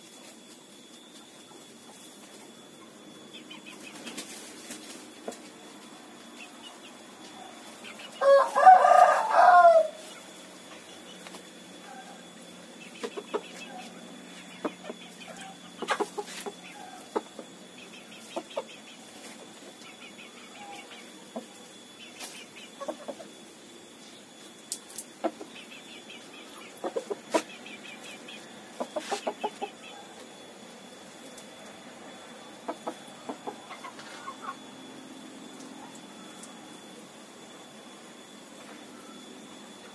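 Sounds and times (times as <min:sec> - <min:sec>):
chickens clucking: 0:01.1 - 0:23.4, 0:24.7 - 0:30.3, 0:32.5 - 0:34.6.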